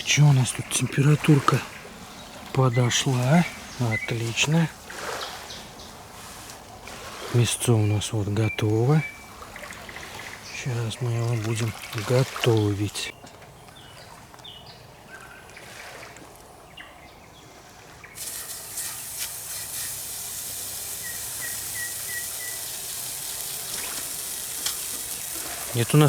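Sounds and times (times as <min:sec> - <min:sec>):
birds chirping faintly: 0:00.0 - 0:26.0
pork sizzling: 0:18.2 - 0:26.0.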